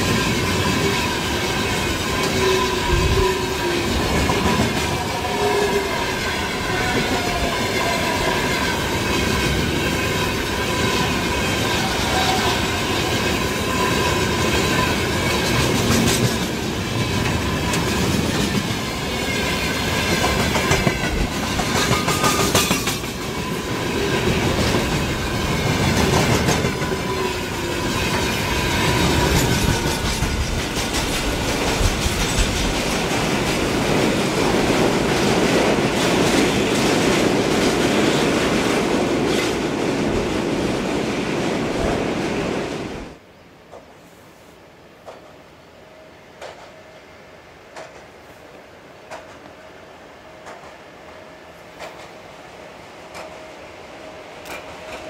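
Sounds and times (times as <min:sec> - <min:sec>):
wheels clattering over rail joints: 0:12.9 - 0:39.8.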